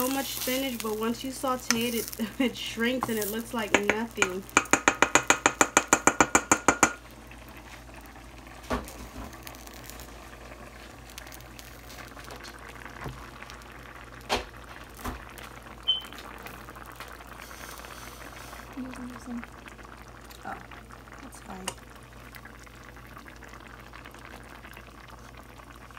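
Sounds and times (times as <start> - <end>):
food bubbling in a pan: 0.0 - 25.9
utensil knocking against a pan: 3.0 - 7.0.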